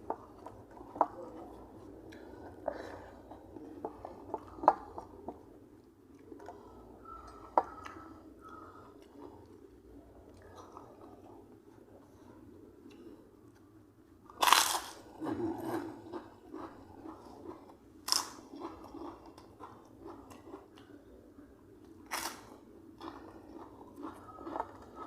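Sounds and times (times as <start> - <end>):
crisp food crunching: 14.3 - 20.9, 22.1 - 25.0
wet chewing: 14.4 - 21.0, 22.1 - 25.0.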